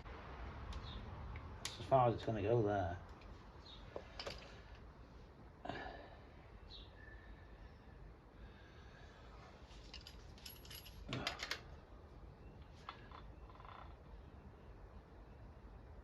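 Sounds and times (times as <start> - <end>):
metal tools clinking and rattling: 9.8 - 11.7.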